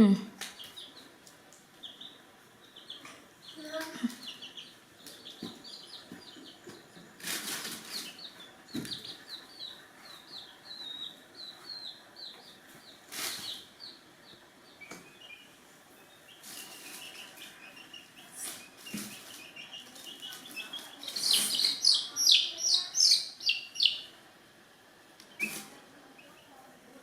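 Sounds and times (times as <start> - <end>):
chicks peeping: 0.1 - 24.2, 25.2 - 26.7.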